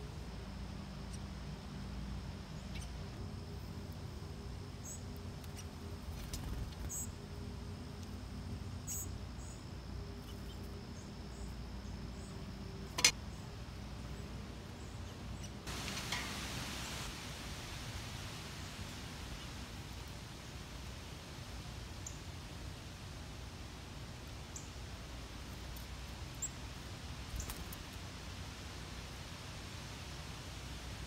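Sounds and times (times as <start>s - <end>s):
low outdoor hum: 0.0s - 31.0s
faint high bird chirps: 2.5s - 3.2s, 4.8s - 7.2s, 8.8s - 15.6s.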